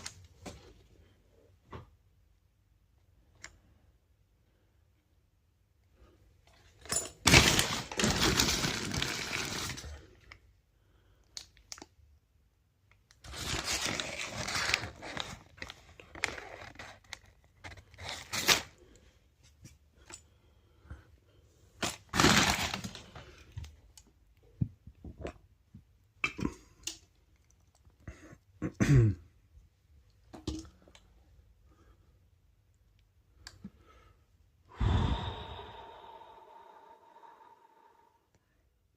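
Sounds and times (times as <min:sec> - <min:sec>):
paper bags and boxes rustling: 0:07.2 - 0:10.0, 0:13.2 - 0:18.8, 0:21.8 - 0:23.4.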